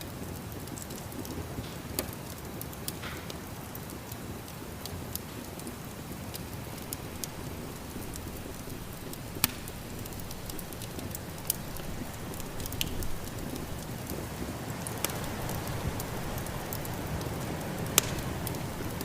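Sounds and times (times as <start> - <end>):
wood fire crackling and popping: 0.0 - 19.0
snowstorm wind: 6.2 - 19.0.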